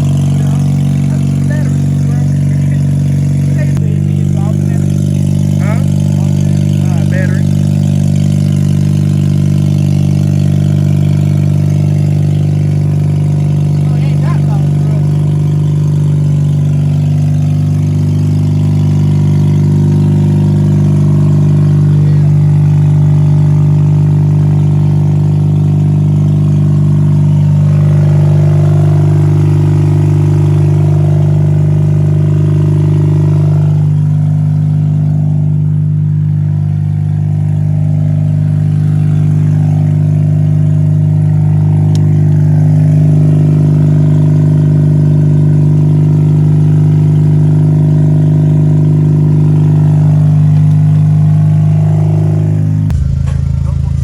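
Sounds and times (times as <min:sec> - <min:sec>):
rotary engine idling: 0:00.0 - 0:54.0.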